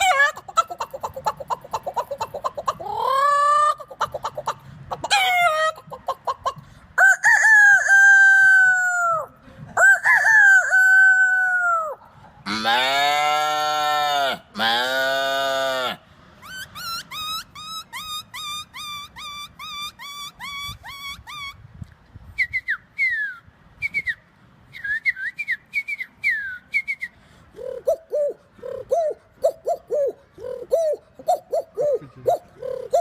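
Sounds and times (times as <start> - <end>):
man imitating animal calls: 0.0 - 6.6, 7.2 - 21.5, 27.5 - 33.0
bird-like whistles: 22.4 - 29.8.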